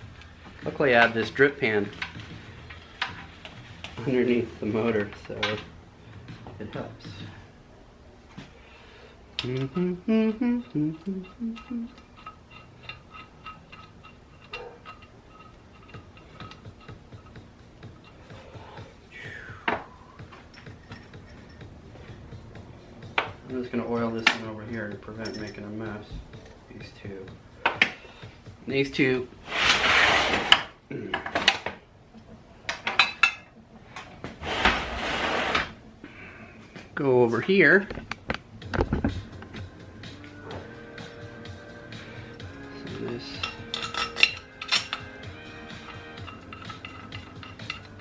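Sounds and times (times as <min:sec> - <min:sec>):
metal tools clinking: 0:11.2 - 0:18.5, 0:20.2 - 0:21.8, 0:23.6 - 0:26.1, 0:42.4 - 0:48.0.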